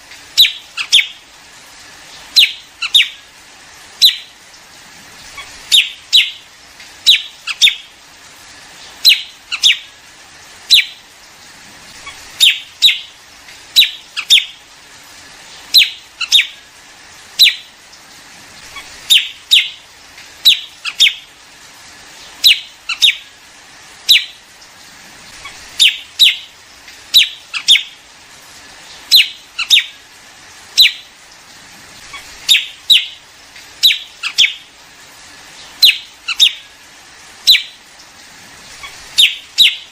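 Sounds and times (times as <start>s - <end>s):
sharp bird calls: 0.4s - 1.2s, 2.3s - 3.2s, 5.3s - 7.9s, 9.0s - 10.0s, 11.9s - 13.1s, 13.7s - 14.6s, 15.7s - 16.6s, 18.6s - 19.8s, 20.4s - 21.3s, 22.4s - 23.3s, 24.1s - 24.4s, 25.4s - 26.5s, 27.1s - 27.9s, 29.1s - 30.0s, 32.0s - 33.2s, 33.8s - 34.7s, 35.8s - 36.7s, 38.8s - 39.9s.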